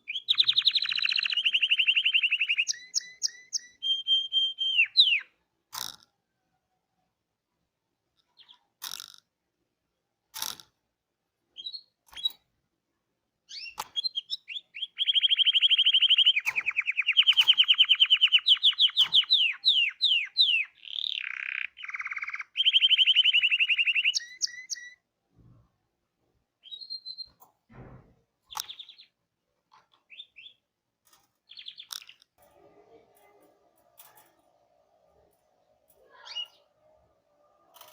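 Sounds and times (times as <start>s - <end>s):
canary singing fast trills: 0.0s - 5.4s, 11.5s - 12.4s, 13.4s - 25.0s, 26.6s - 27.4s, 28.5s - 29.2s, 30.0s - 30.7s, 31.4s - 32.4s, 36.0s - 37.9s
canary chirping: 0.0s - 5.9s, 8.2s - 9.0s, 11.5s - 12.6s, 13.4s - 25.1s, 26.5s - 27.6s, 28.4s - 37.9s.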